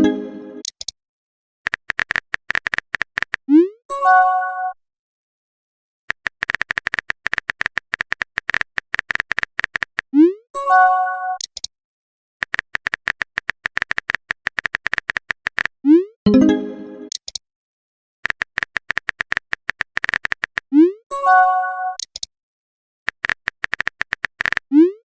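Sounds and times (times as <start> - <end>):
message sent chime: 0.0 - 0.6, 16.3 - 17.1
keyboard typing clicks: 0.0 - 1.0, 1.7 - 3.4, 6.1 - 10.1, 11.4 - 11.7, 12.4 - 15.7, 16.3 - 17.4, 18.2 - 20.7, 22.0 - 22.3, 23.1 - 24.7.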